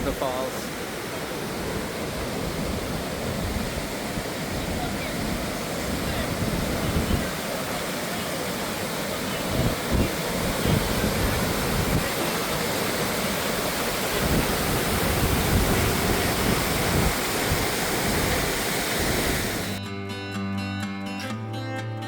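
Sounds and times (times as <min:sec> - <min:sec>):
waterfall rushing: 0:00.0 - 0:19.8
acoustic guitar music: 0:19.6 - 0:22.0.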